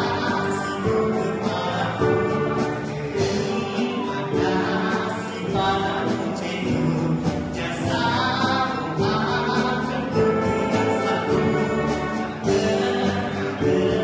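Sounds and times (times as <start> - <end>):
person singing: 0.0 - 14.0
wind orchestra playing slow song: 9.4 - 14.0.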